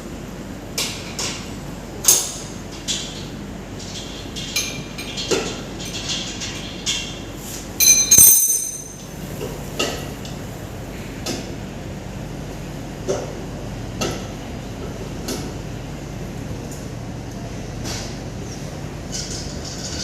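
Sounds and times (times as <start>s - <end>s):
steady low hum: 0.0s - 20.0s
ringing metal clank: 7.8s - 9.1s
wrench and bolts clinking on metal: 7.8s - 9.1s.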